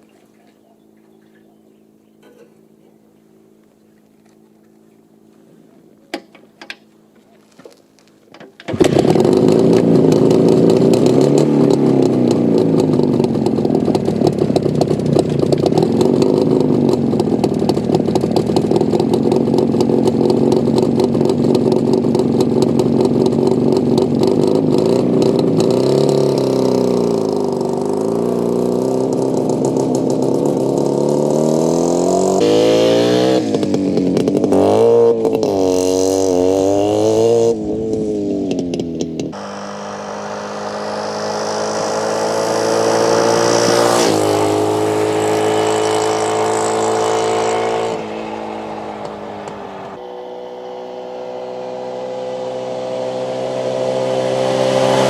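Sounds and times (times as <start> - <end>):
motorcycle engine knocks: 8.4 - 24.4
two-stroke motorcycle engine: 8.4 - 55.0.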